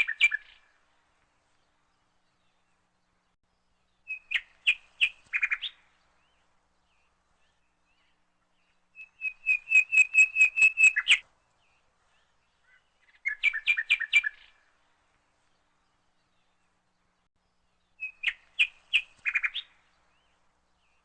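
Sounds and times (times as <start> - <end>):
bird chirping: 0.0 - 0.8, 1.7 - 21.0.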